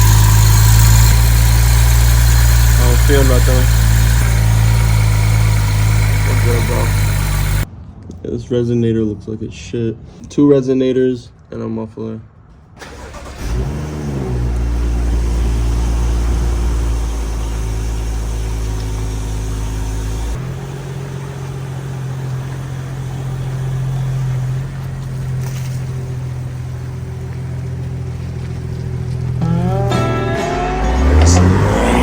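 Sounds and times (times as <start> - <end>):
car engine running: 0.0 - 7.7, 12.8 - 32.0.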